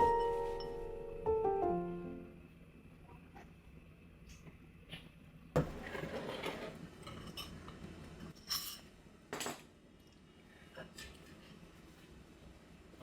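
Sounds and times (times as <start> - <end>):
dishes and utensils handled: 5.6 - 9.7.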